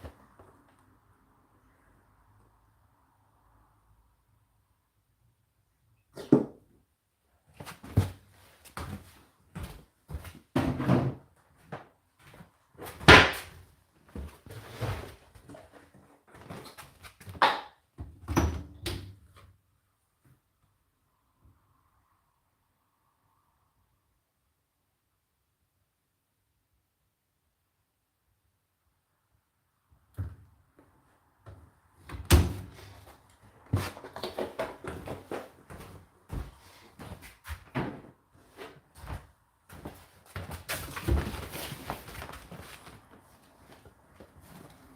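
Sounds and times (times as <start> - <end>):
objects clunking and scraping: 32.2 - 35.9.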